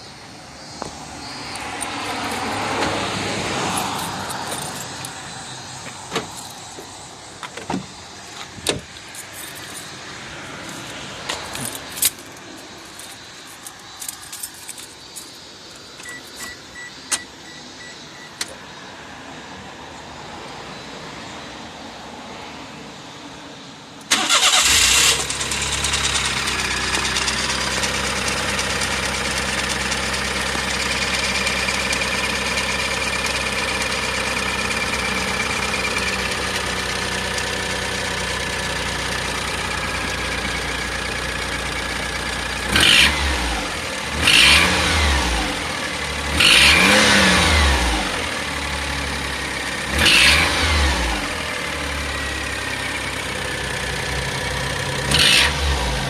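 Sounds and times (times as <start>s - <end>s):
car engine starting and idling: 0.0s - 18.9s, 24.0s - 56.0s
engine revving: 24.1s - 32.4s, 42.5s - 56.0s.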